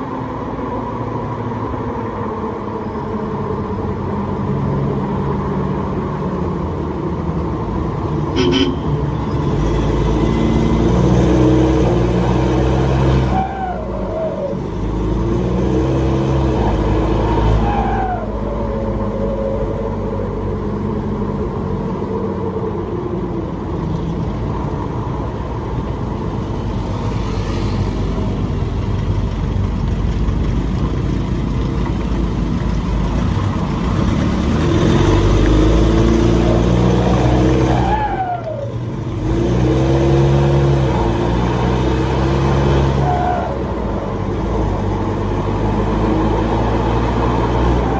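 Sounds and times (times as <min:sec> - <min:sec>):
turbocharged engine accelerating: 0:00.0 - 0:47.9
falling turbo whistle: 0:08.4 - 0:09.0.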